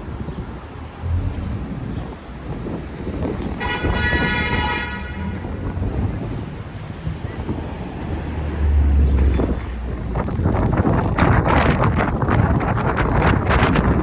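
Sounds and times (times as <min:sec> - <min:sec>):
street traffic rumble: 0:00.0 - 0:14.0
wind buffeting microphone: 0:00.0 - 0:14.0
vehicle horn: 0:03.5 - 0:05.6.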